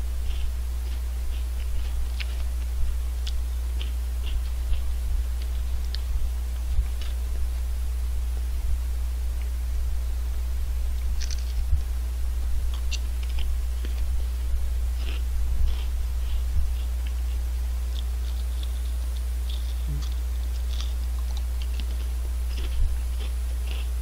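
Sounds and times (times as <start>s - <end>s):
steady low hum: 0.0s - 24.0s
potato chips crunching: 11.0s - 11.7s, 14.9s - 24.0s.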